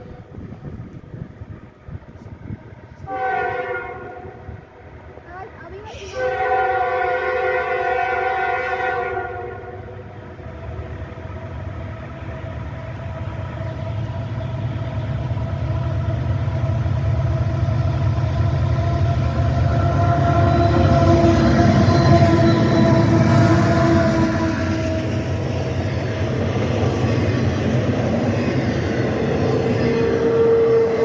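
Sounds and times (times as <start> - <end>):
diesel locomotive rumble: 0.0 - 31.0
train horn chord: 3.0 - 4.5, 6.2 - 10.0, 18.8 - 25.4, 29.9 - 31.0.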